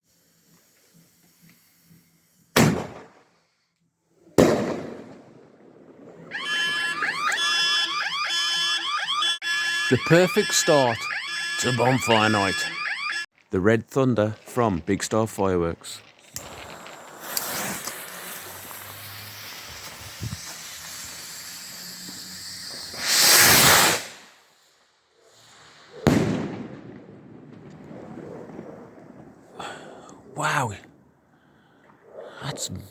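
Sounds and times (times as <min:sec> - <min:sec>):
firework bangs: 0:02.6 - 0:03.2, 0:04.4 - 0:08.6, 0:16.1 - 0:24.3, 0:25.4 - 0:29.5
repeated pitched sliding tones: 0:06.3 - 0:13.3
fuse hissing: 0:16.1 - 0:24.4
rocket launch whoosh: 0:16.4 - 0:24.3, 0:25.4 - 0:29.3.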